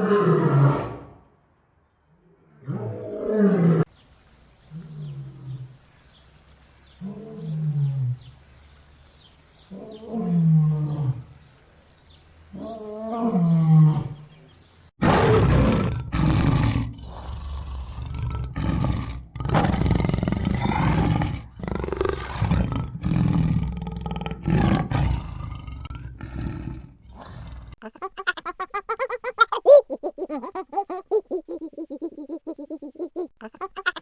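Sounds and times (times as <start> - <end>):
big cat roaring and growling: 15.0 - 27.8.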